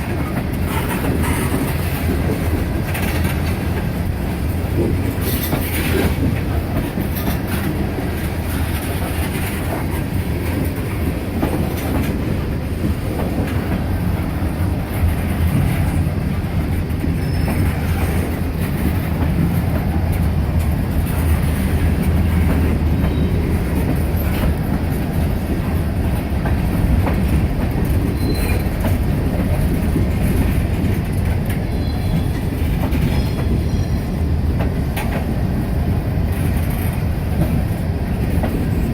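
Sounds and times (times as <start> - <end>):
freight train rumbling past: 0.0 - 38.9
wheels clicking over rail joints: 0.0 - 38.9
faint wheel squeals: 17.2 - 17.8, 28.2 - 28.7.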